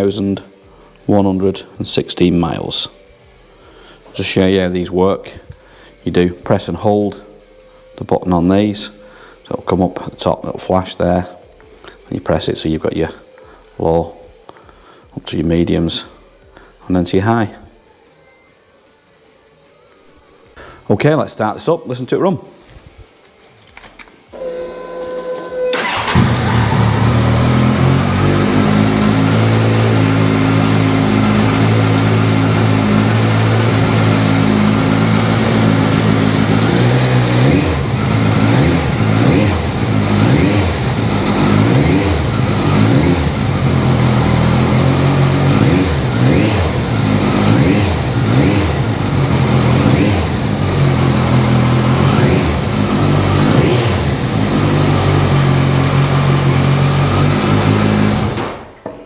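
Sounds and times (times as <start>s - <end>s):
motorcycle engine idling and revving: 25.8s - 58.4s.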